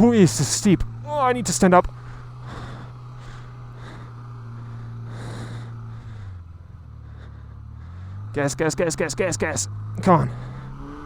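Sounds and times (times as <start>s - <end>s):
motorcycle engine at low revs: 0.0s - 11.0s
rider breathing hard: 1.9s - 8.3s, 10.2s - 11.0s.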